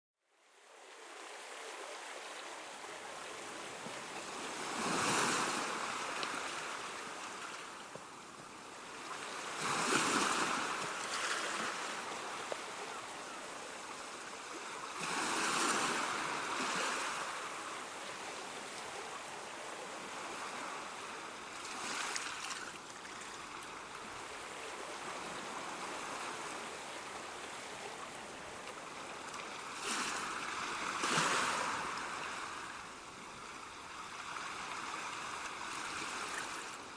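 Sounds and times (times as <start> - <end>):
ocean waves breaking: 0.9 - 36.9.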